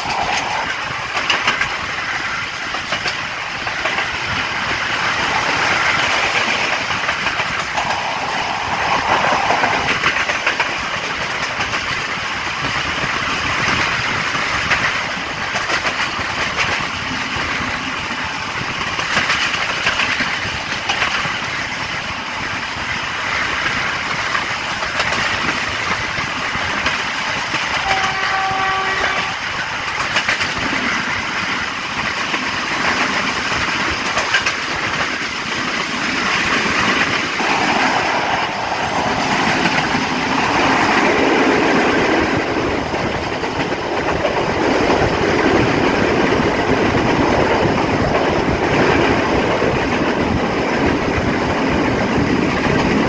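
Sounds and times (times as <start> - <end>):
train wheel and wind noise: 0.0 - 53.0
wheels clacking over rail joints: 0.0 - 53.0
locomotive horn: 27.8 - 29.4.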